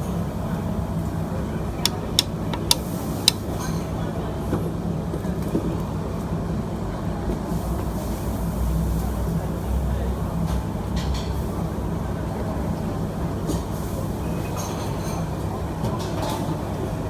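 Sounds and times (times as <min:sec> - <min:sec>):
gas wok burner roaring: 0:07.5 - 0:10.5.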